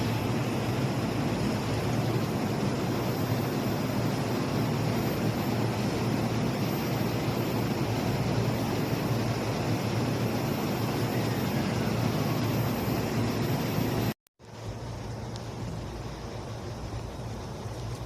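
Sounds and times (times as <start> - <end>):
electric train running: 0.0 - 14.1.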